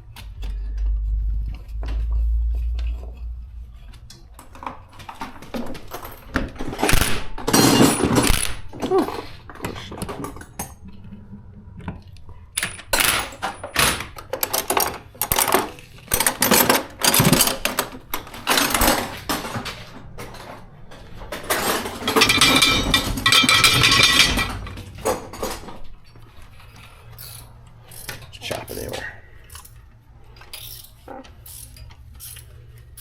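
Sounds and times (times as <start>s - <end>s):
metal tools clinking: 5.2s - 10.5s, 12.6s - 20.6s, 21.3s - 28.3s.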